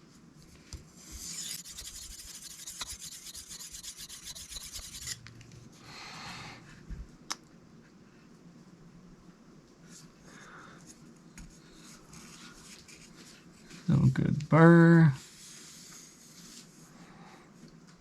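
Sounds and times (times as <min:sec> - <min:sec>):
knife scraping on sharpening stone: 0:01.2 - 0:05.2.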